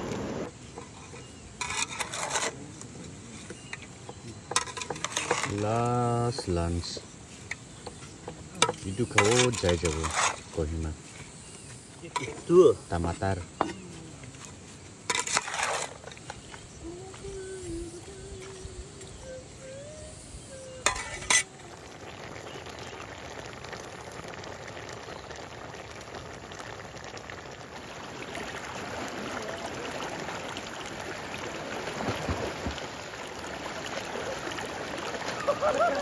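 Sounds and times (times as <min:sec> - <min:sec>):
food sizzling in a hot pan: 0:03.5 - 0:13.8, 0:20.1 - 0:36.0.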